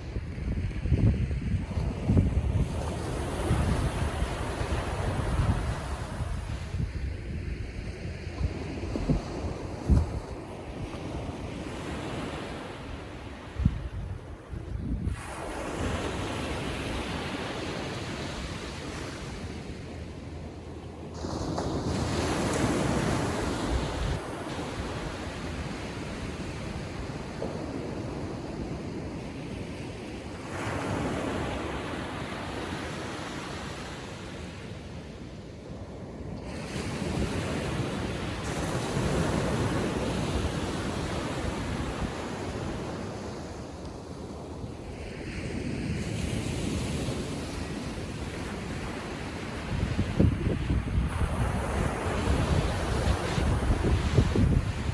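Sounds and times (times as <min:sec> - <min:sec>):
wind rumbling on microphone: 0:00.0 - 0:19.6, 0:36.6 - 0:54.9
waves breaking on beach: 0:00.0 - 0:54.9.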